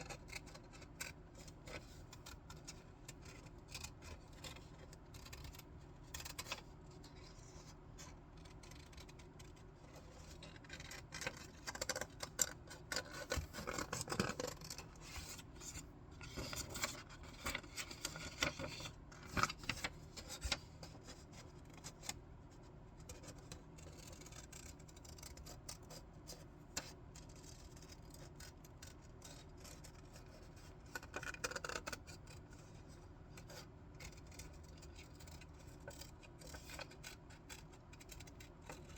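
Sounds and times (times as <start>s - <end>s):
scissors snipping paper: 0.0s - 6.6s, 23.1s - 32.5s, 33.3s - 38.9s.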